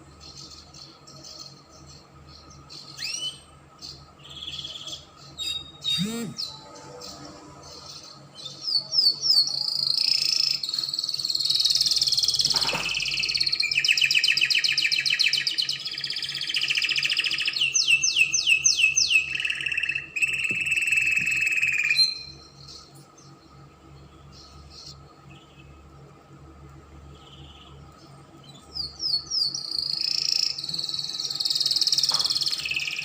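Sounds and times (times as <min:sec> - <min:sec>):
canary singing trills: 0:00.2 - 0:26.4, 0:27.0 - 0:33.0.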